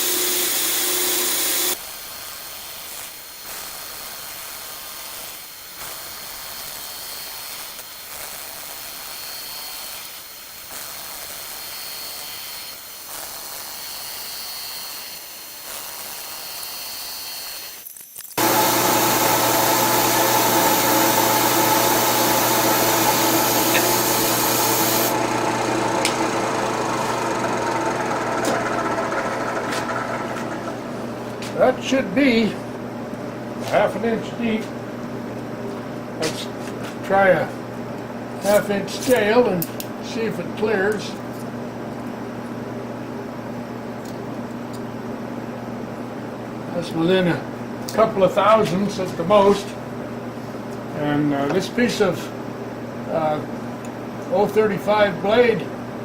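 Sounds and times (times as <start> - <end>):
milling machine cutting: 0.0 - 1.8, 11.4 - 31.0.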